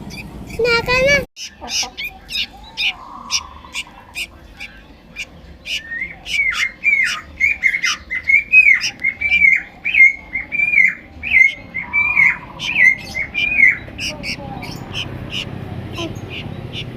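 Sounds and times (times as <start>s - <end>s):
bird chicks squawking: 0.0s - 16.9s.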